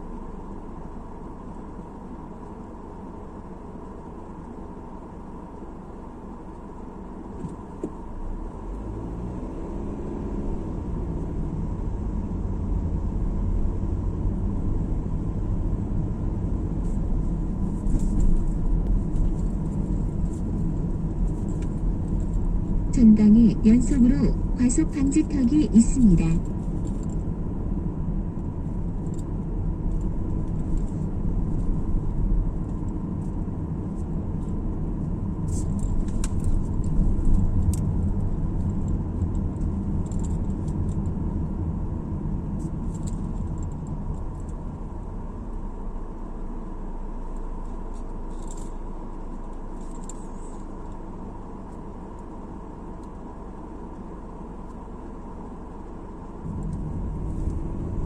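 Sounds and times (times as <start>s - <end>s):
car tyres and engine rumble: 0.0s - 58.0s
light rattles and clicks: 16.8s - 22.8s, 28.3s - 41.2s, 42.5s - 44.7s, 47.3s - 53.2s.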